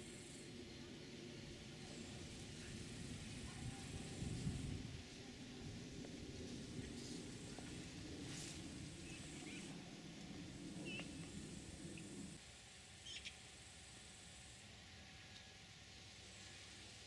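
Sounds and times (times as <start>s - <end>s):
low background rumble: 0.0s - 12.4s
faint bird chirps: 10.8s - 11.2s, 13.0s - 13.4s.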